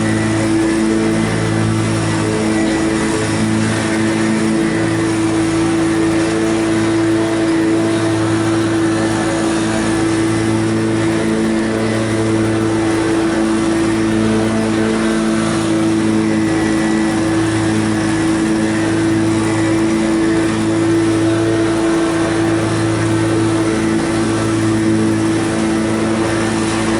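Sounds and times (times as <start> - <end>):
lawn mower cutting grass: 0.0 - 26.9.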